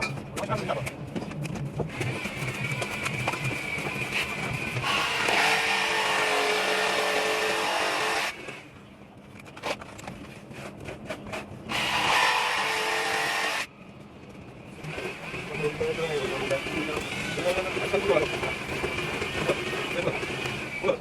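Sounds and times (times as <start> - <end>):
power tool running: 1.9 - 8.6, 11.7 - 13.7.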